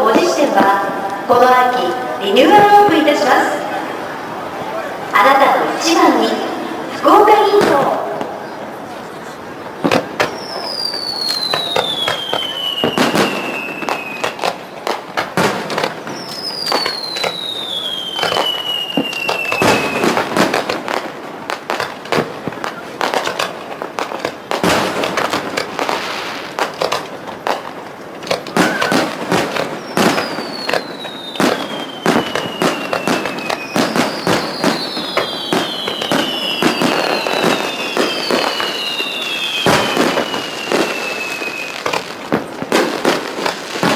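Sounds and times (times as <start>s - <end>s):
fireworks bangs and crackles: 0.0s - 43.9s
whistling firework shells: 9.8s - 43.9s.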